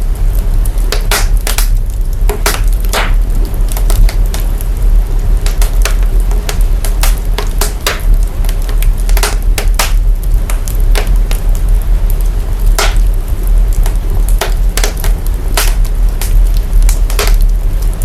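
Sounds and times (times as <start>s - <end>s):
deep rumble and hiss: 0.0s - 18.0s
fire crackling and popping: 0.0s - 18.0s.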